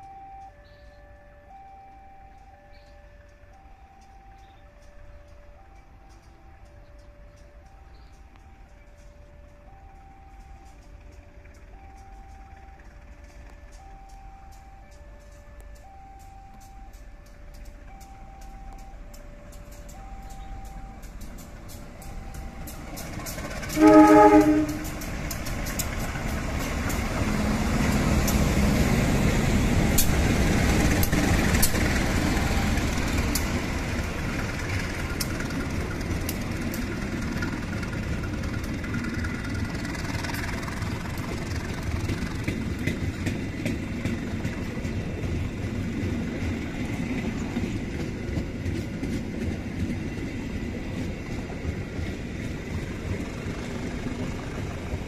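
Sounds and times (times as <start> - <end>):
locomotive engines rumbling: 0.0 - 55.0
wheels rolling on rails: 2.3 - 55.0
train horn blast: 23.4 - 25.2.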